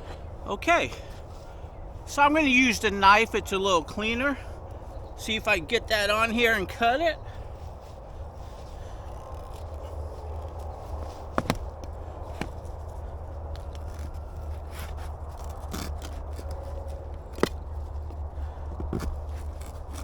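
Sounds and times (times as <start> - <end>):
knife sawing sugarcane: 13.6 - 17.6, 18.4 - 20.0.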